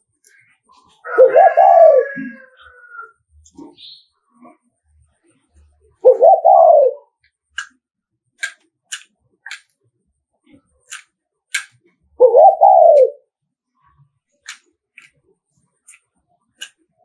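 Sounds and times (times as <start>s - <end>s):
dove cooing: 1.0s - 4.6s, 6.0s - 7.2s, 12.2s - 13.3s
sharp clicks: 8.4s - 9.7s, 10.9s - 11.8s.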